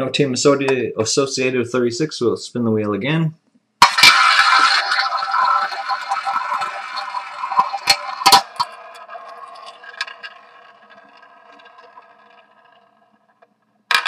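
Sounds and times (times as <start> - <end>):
roulette ball rolling whir: 3.8 - 14.0.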